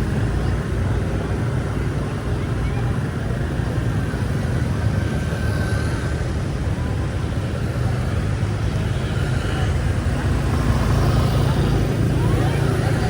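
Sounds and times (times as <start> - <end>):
road noise: 0.0 - 13.0
vehicle engine rumble: 0.0 - 13.0.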